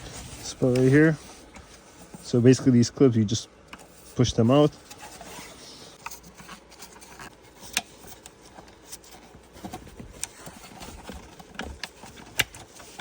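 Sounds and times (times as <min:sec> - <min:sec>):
rustling and handling: 0:00.0 - 0:13.0.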